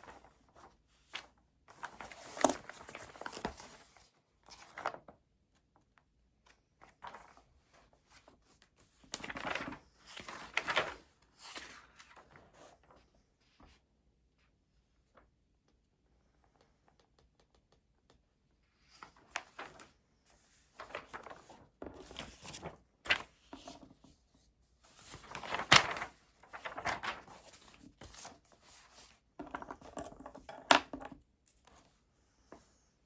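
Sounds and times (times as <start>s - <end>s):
papers and books rustling: 0.0s - 5.2s, 6.8s - 13.8s, 18.9s - 32.8s.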